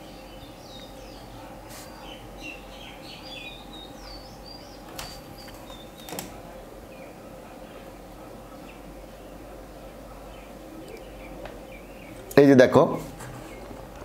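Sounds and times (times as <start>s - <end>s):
small birds chirping: 0.0s - 12.6s, 13.4s - 13.8s
faint steady hum: 0.0s - 14.0s.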